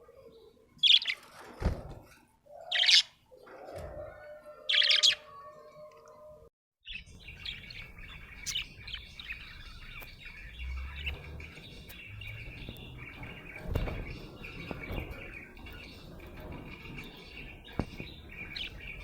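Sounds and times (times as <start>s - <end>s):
budgerigar chirping and chattering: 6.9s - 19.0s.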